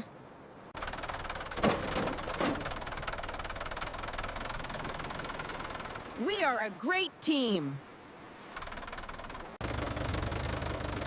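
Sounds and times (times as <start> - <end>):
small engine knocking steadily: 0.8 - 6.2, 8.5 - 11.0.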